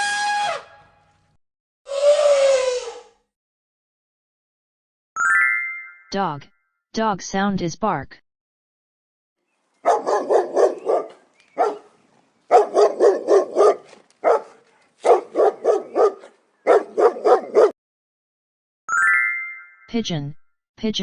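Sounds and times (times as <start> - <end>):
dog barking: 9.8 - 17.8.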